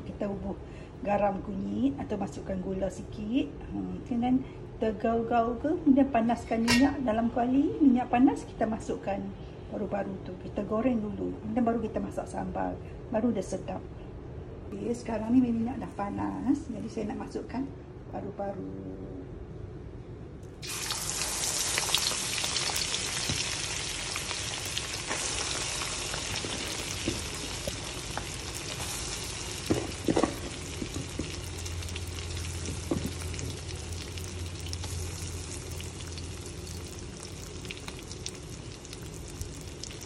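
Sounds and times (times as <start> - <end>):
food sizzling in hot oil: 20.6 - 40.0.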